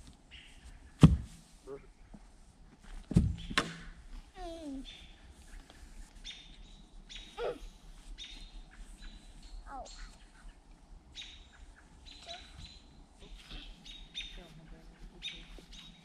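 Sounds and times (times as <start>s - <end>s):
songbirds chirping: 0.1s - 2.4s, 4.3s - 16.0s.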